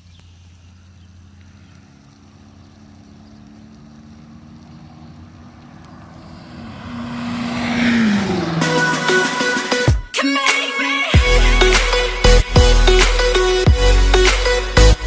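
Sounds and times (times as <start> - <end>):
car engine exhaust drive-by: 0.0 - 9.2.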